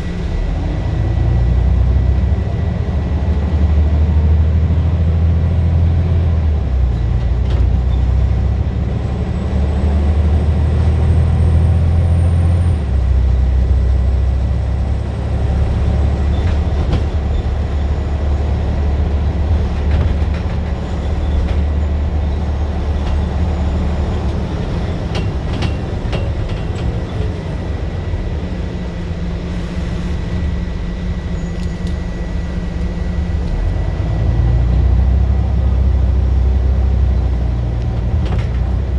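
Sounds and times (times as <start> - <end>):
bus diesel engine droning: 0.0 - 38.9
faint high whine: 28.2 - 34.1.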